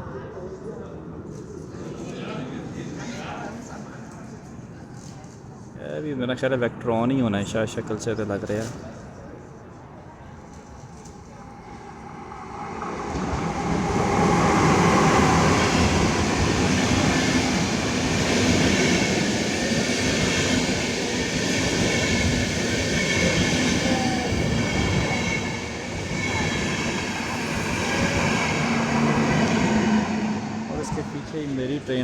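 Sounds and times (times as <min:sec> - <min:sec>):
train wheels rumbling on rails: 0:10.5 - 0:32.0.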